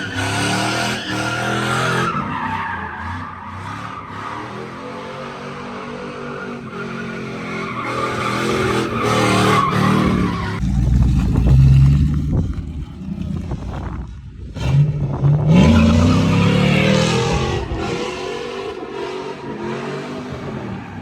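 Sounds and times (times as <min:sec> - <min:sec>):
tyres skidding and squealing: 0:00.0 - 0:21.0.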